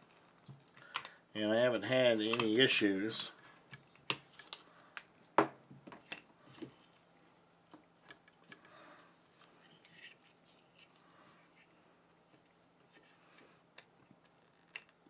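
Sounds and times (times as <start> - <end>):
soft rustling: 6.0 - 13.6.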